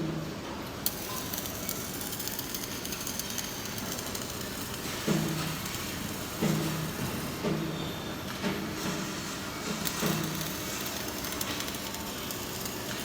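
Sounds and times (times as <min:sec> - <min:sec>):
welding arc crackling and hissing: 0:00.8 - 0:13.0.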